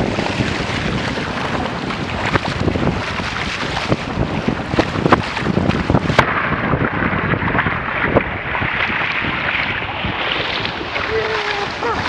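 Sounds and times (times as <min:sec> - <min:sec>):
water rushing past hulls: 0:00.0 - 0:12.0
wind buffeting microphone: 0:00.0 - 0:12.0.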